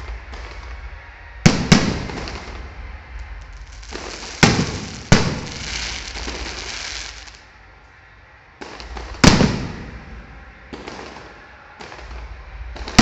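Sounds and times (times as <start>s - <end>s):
rushing noise: 0.0s - 13.0s
firework bang: 1.4s - 2.6s, 3.7s - 7.2s, 8.8s - 10.2s.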